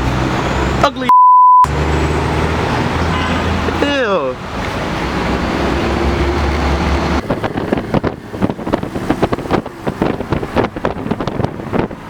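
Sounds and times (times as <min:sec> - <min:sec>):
road noise: 0:00.0 - 0:12.0
vehicle engine humming: 0:00.0 - 0:12.0.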